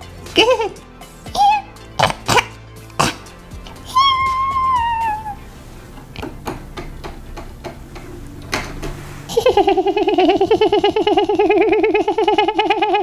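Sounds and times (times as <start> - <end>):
high giggle-like warbling voice: 0.4 - 1.7, 3.8 - 5.4, 9.3 - 13.0.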